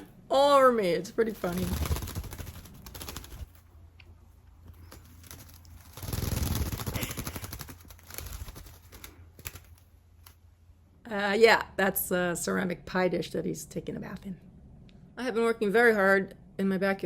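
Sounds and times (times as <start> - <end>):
bird fluttering and splashing: 1.3 - 3.8, 4.7 - 9.9.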